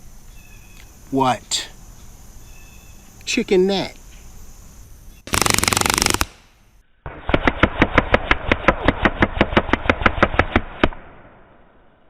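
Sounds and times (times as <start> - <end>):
airgun shots in rapid succession: 5.3 - 11.3.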